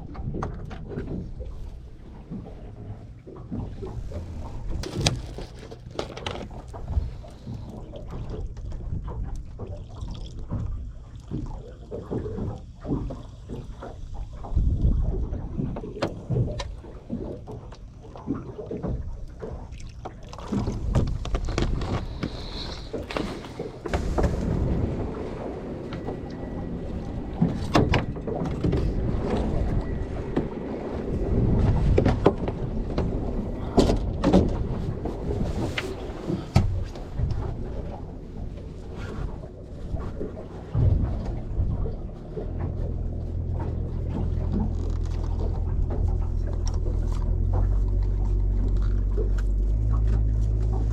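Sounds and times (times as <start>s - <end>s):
boat engine rumble: 0.0s - 50.9s
water noise: 0.0s - 50.9s
wind noise: 14.4s - 16.7s, 20.5s - 48.1s
sharp knocks and bangs: 40.8s - 41.7s.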